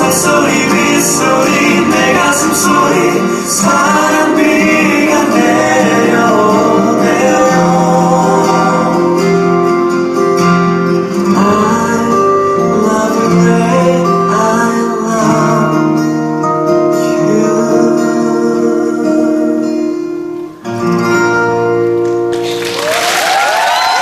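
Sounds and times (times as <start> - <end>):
man singing: 0.0 - 9.6, 11.1 - 19.8
guitar-led band backing: 0.0 - 24.0.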